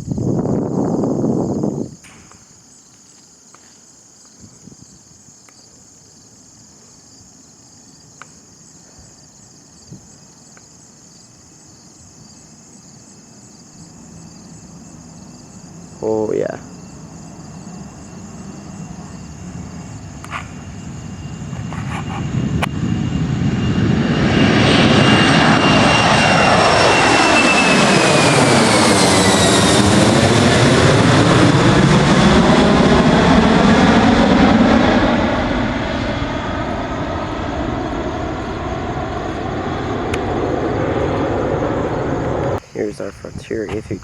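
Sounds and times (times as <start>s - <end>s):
jet plane taking off: 0.0s - 2.8s, 13.0s - 44.0s.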